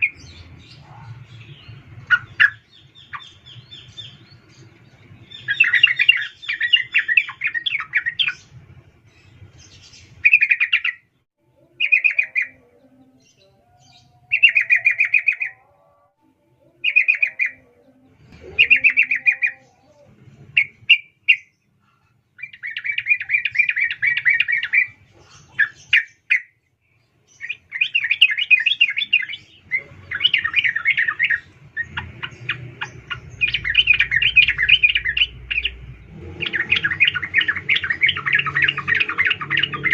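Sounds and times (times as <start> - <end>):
bird rapid chattering calls: 27.4 - 39.9.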